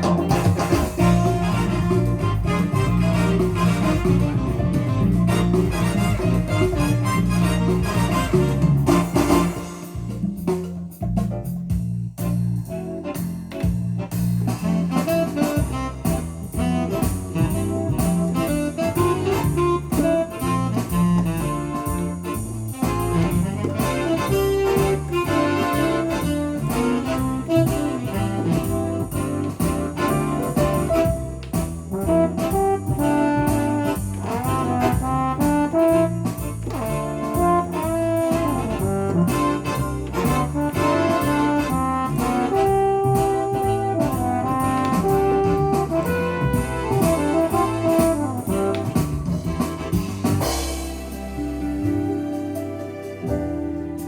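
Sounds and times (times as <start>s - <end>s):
keyboard accompaniment with brass melody: 0.0s - 54.0s.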